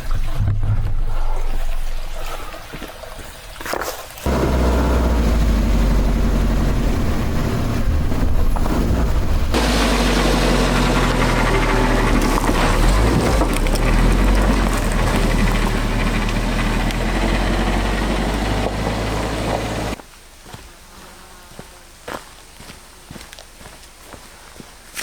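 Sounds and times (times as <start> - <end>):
engine humming: 4.3 - 20.0.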